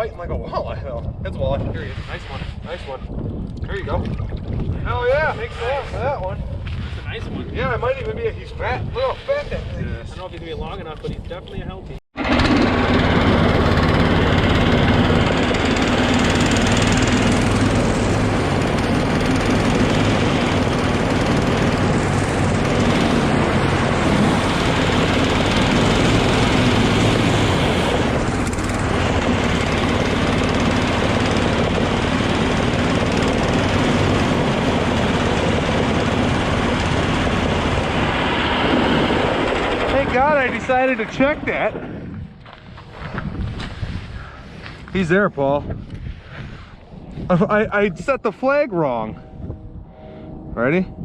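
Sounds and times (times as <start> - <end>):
track sled engine running: 12.2 - 41.8.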